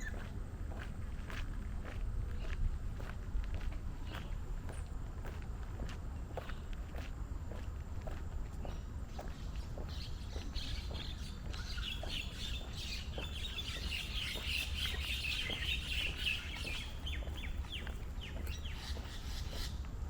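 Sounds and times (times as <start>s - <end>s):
birds chirping and twittering: 0.0s - 0.4s, 6.3s - 20.0s
faint walking footsteps: 0.0s - 20.0s.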